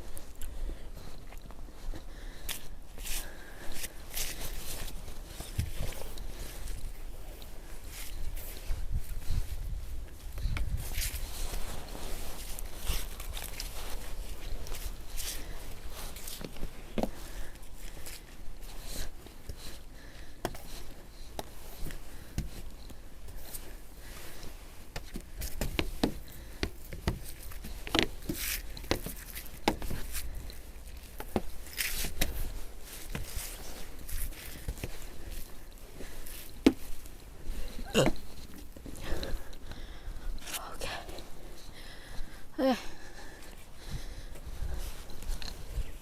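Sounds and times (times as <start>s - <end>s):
crunching and scraping in snow: 3.0s - 19.2s, 27.5s - 38.4s.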